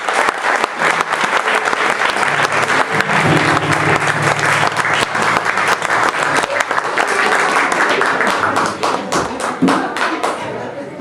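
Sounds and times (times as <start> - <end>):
audience applauding: 0.0 - 10.5
low held tone: 2.6 - 6.3.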